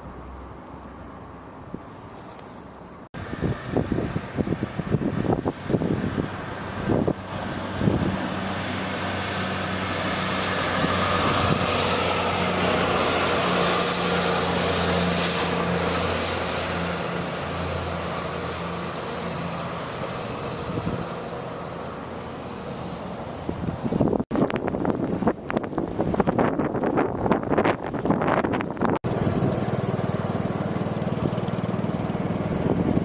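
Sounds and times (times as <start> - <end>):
traffic hiss: 0.0 - 24.2
large vehicle engine hum: 0.0 - 25.3, 27.9 - 33.0
wind: 0.0 - 33.0.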